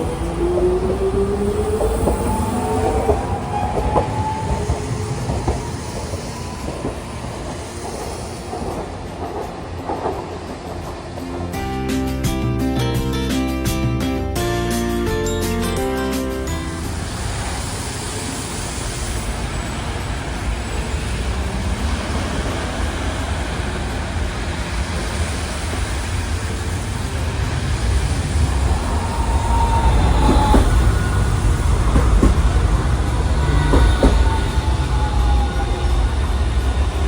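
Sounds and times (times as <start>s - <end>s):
road traffic: 0.0s - 11.8s, 16.3s - 37.0s
streetcar rumbling: 0.0s - 37.0s
high wheel squeals: 16.4s - 37.0s.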